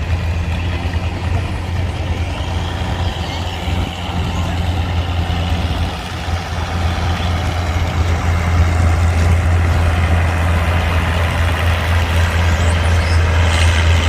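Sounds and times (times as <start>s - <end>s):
heavy engine idling: 0.0s - 14.0s.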